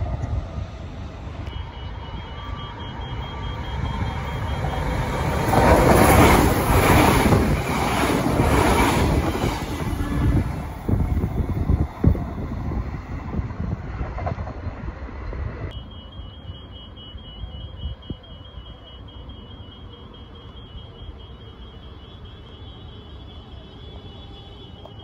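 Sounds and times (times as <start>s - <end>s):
train wheels rushing on rails: 0.0s - 15.8s.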